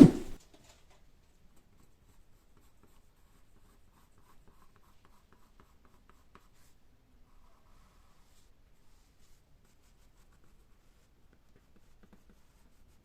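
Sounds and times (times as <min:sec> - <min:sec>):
scratching on hard surface: 0:00.0 - 0:00.4.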